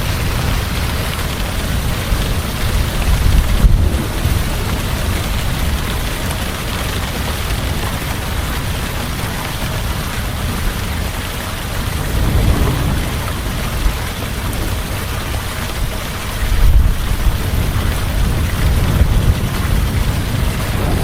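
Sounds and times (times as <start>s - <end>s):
heavy rain falling: 0.0s - 21.0s
thunder rumbling: 1.6s - 7.8s, 11.5s - 21.0s.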